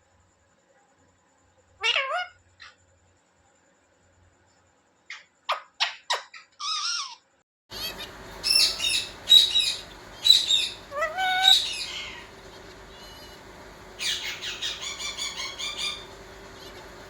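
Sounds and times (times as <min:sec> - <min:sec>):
parrot calling: 0:01.8 - 0:02.8, 0:05.1 - 0:17.0
shrill parrot chirps: 0:01.8 - 0:02.8, 0:05.1 - 0:13.4, 0:14.0 - 0:17.0.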